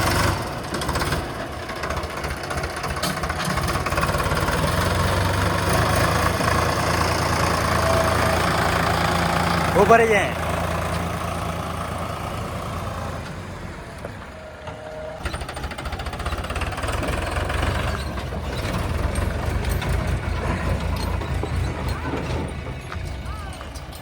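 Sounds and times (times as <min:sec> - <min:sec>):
diesel machinery engine knocking: 0:00.0 - 0:24.0.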